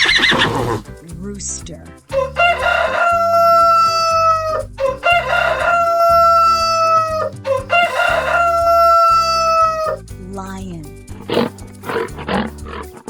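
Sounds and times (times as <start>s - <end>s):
rooster crowing: 2.1s - 10.0s.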